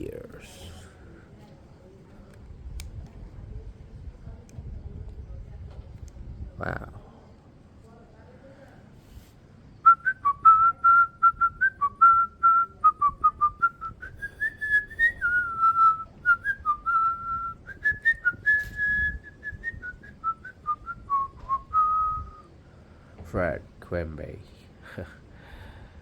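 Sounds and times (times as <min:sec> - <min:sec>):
person whistling a tune: 0:09.9 - 0:22.4.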